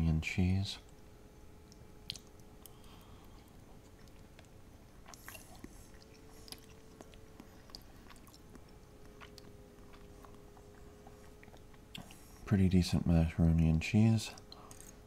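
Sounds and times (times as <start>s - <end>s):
faint steady hum: 0.0s - 15.0s
faint chewing: 1.6s - 12.5s, 14.3s - 15.0s
soft mouth clicks: 1.7s - 3.1s.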